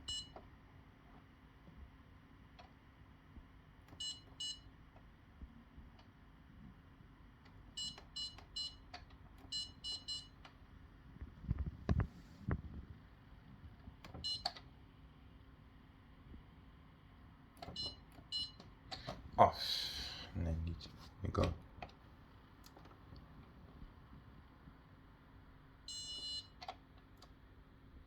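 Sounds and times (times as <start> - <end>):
dishwasher control panel beeps: 0.0 - 0.4, 4.0 - 4.7, 7.8 - 8.8, 9.5 - 10.4, 14.1 - 14.6, 17.6 - 19.1, 25.9 - 26.6.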